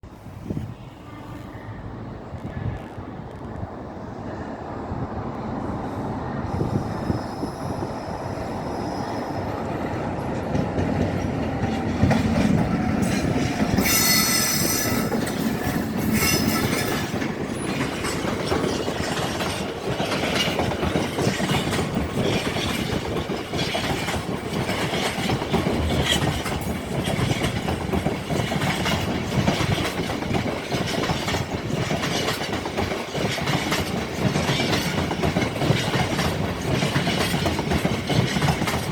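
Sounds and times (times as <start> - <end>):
freight train rumble: 0.0 - 38.9
high wheel squeal: 6.5 - 9.9, 13.0 - 18.8
wheels clacking over rail joints: 9.5 - 38.9.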